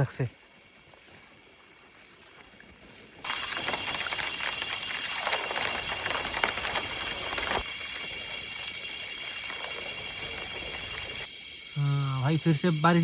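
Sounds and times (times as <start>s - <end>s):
insects chirring: 0.0s - 13.0s
large raindrops pattering: 3.2s - 7.7s.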